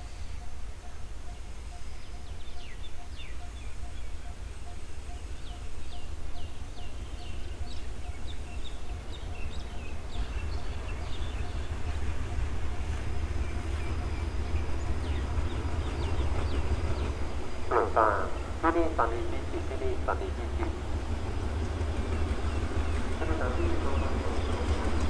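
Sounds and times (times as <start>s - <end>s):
train approaching with low rumble: 0.0s - 25.0s
birds chirping: 0.1s - 25.0s.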